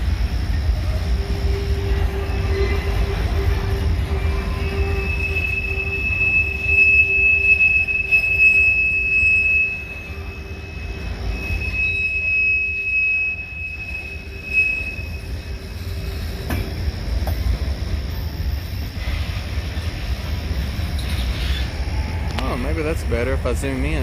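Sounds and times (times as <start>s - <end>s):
freight train cars rumbling: 0.0s - 24.0s
high-pitched wheel squeal: 1.1s - 16.4s, 21.0s - 22.7s.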